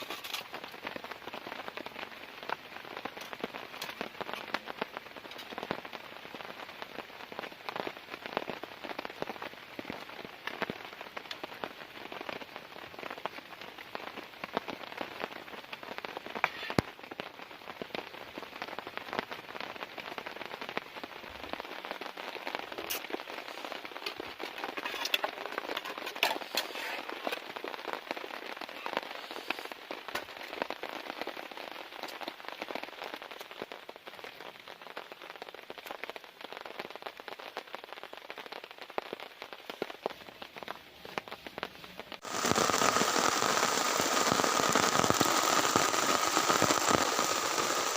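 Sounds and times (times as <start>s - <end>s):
heavy rain on a tent: 0.0s - 47.9s.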